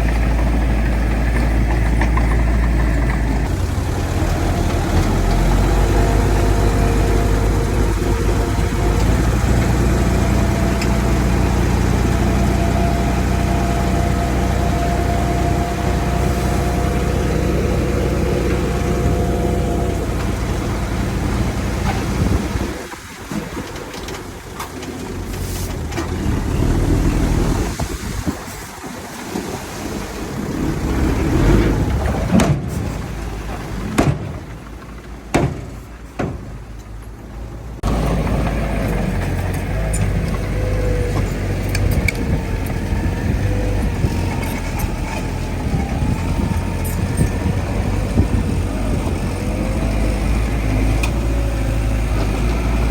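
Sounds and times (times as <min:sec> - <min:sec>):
heavy diesel engine running: 0:00.0 - 0:28.5, 0:29.4 - 0:52.9
sharp knocks: 0:34.0 - 0:34.6, 0:35.3 - 0:36.6.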